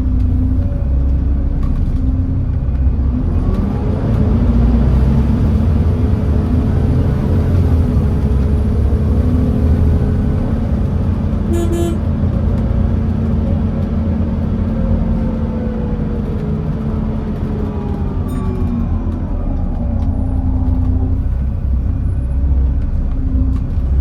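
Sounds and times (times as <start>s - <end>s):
bus diesel engine running: 0.0s - 24.0s
horn toot: 11.5s - 12.0s.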